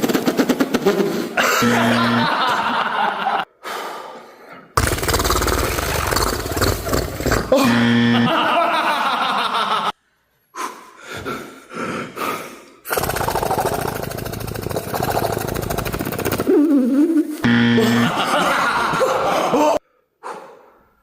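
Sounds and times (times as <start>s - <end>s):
beatboxer imitating helicopter: 0.0s - 2.3s, 4.8s - 7.8s, 12.9s - 18.2s
breathy sounds: 10.2s - 18.1s, 19.1s - 21.0s.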